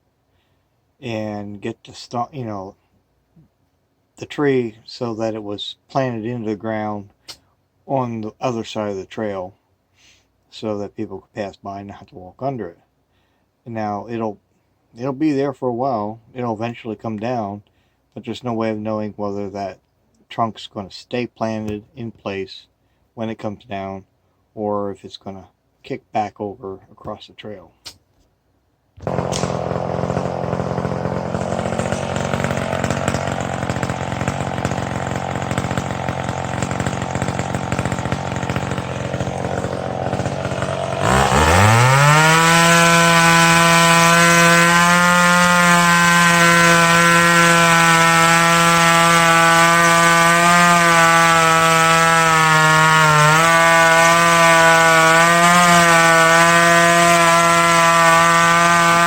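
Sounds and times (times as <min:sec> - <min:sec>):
chainsaw idling and revving: 0:29.0 - 0:59.0.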